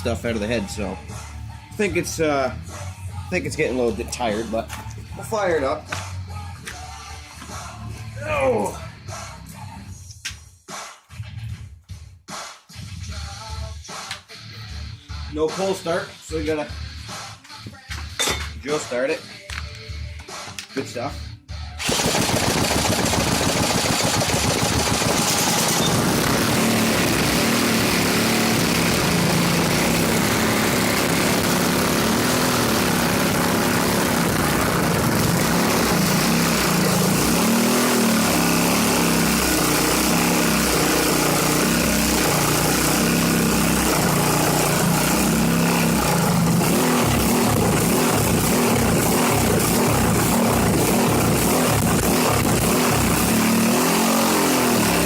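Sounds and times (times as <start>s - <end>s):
small engine running unevenly: 21.8s - 55.0s.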